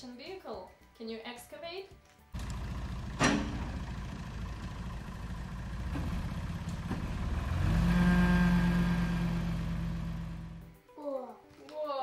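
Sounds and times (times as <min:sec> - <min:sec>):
toy backhoe engine rumble: 0:02.4 - 0:08.8.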